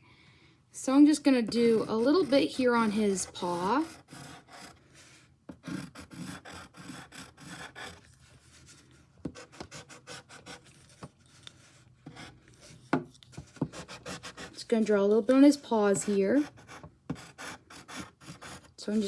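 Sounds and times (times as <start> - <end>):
pencil strokes scratching on paper: 1.0 - 19.0.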